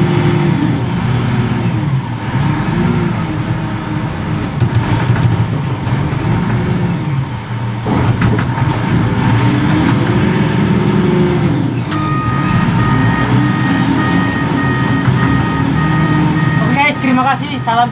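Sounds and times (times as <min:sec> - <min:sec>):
heavy diesel engine revving: 0:00.0 - 0:17.9.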